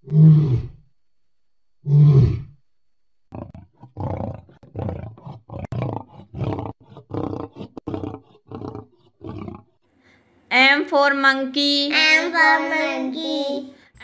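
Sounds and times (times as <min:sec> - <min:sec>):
lion roaring: 0:00.0 - 0:00.8, 0:01.8 - 0:02.6, 0:03.3 - 0:09.8.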